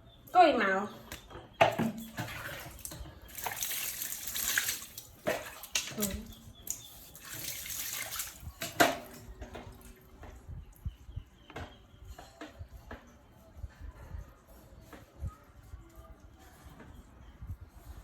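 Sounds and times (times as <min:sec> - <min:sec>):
water splashing and pouring: 0:02.1 - 0:09.3.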